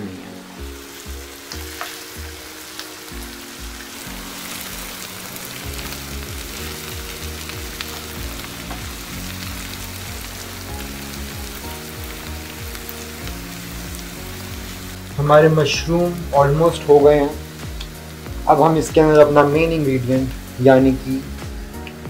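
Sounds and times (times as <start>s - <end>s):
background music: 0.0s - 22.0s
mushrooms sizzling in a frying pan: 0.1s - 22.0s.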